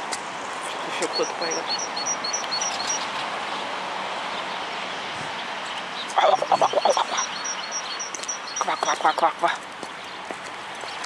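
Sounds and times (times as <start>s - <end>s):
city background hum: 0.0s - 11.0s
quack-like calls: 6.2s - 7.7s, 8.5s - 9.5s.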